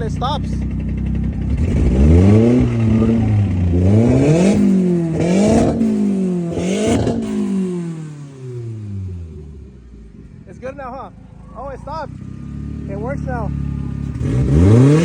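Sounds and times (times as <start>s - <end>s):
car engine revving hard: 1.2s - 9.7s, 12.1s - 15.0s.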